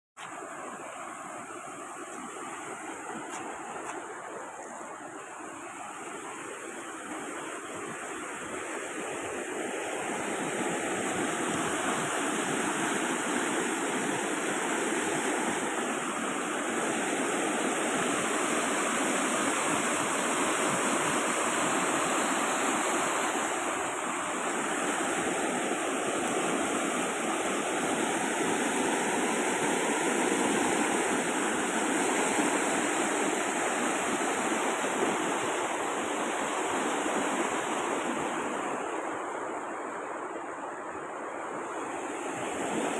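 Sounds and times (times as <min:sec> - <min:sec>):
rushing water: 0:00.2 - 0:42.9.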